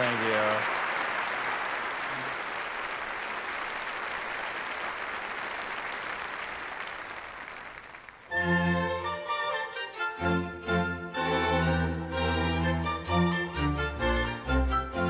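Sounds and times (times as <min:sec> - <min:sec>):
congregation applauding: 0:00.0 - 0:08.4.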